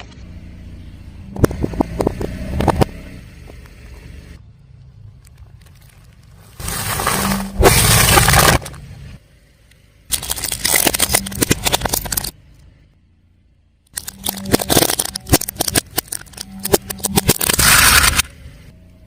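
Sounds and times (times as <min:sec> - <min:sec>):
car tyre crushing brittle objects: 0:05.1 - 0:09.2, 0:10.1 - 0:12.7, 0:13.9 - 0:18.3.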